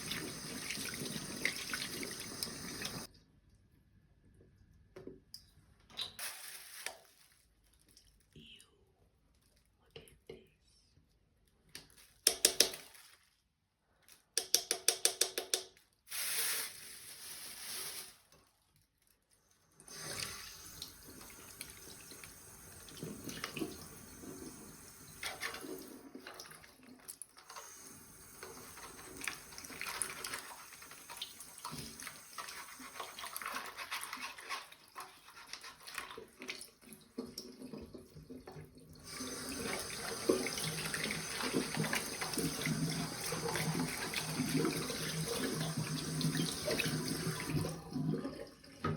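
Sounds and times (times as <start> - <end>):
water running from tap: 0.0 - 3.1, 19.8 - 26.8, 27.4 - 48.2.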